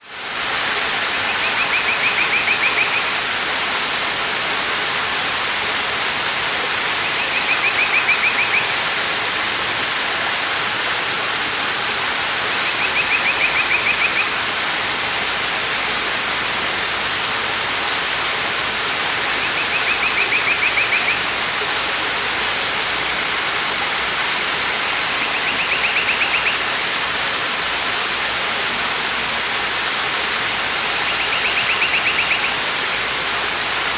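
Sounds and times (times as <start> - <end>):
waterfall rushing: 0.0 - 33.9
bird trilling: 7.0 - 8.7, 19.4 - 21.2, 25.2 - 26.6, 31.0 - 32.6.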